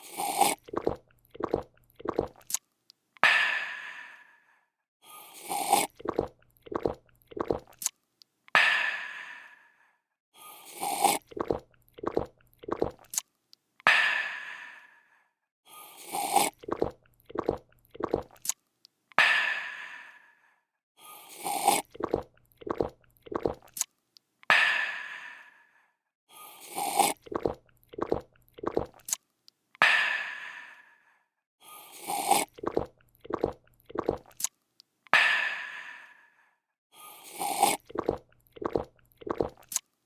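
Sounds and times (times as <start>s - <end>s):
person gulping: 0.0s - 2.5s, 5.5s - 7.8s, 10.9s - 13.1s, 16.2s - 18.4s, 21.5s - 23.8s, 26.8s - 29.2s, 32.1s - 34.5s, 37.4s - 39.8s
person slurping: 0.0s - 2.6s, 5.2s - 7.9s, 10.6s - 13.2s, 15.8s - 18.5s, 21.2s - 23.8s, 26.5s - 29.2s, 31.8s - 34.5s, 37.0s - 39.8s.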